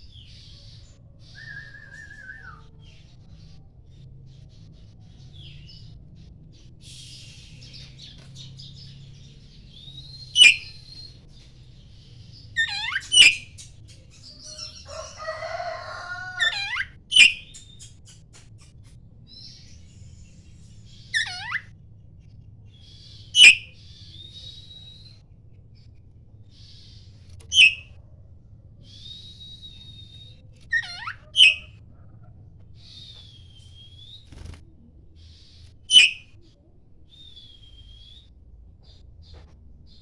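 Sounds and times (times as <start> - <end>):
bird twittering and chattering: 0.0 - 21.7, 22.3 - 25.2, 26.5 - 27.9, 28.9 - 31.8, 35.2 - 36.4.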